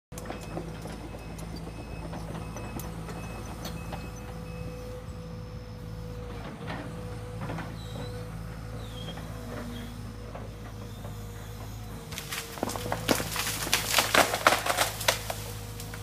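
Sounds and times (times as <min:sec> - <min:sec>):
diesel engine running: 0:00.1 - 0:16.0.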